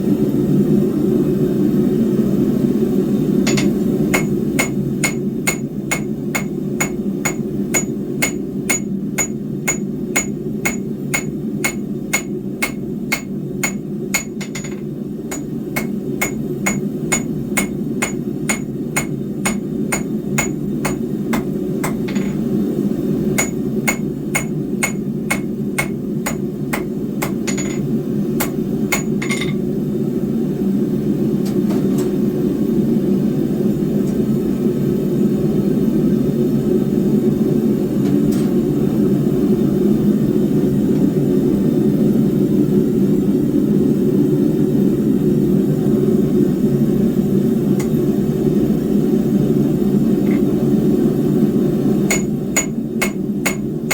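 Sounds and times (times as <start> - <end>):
hammer ringing on anvil: 3.5 - 22.4, 23.4 - 29.6, 52.1 - 53.7.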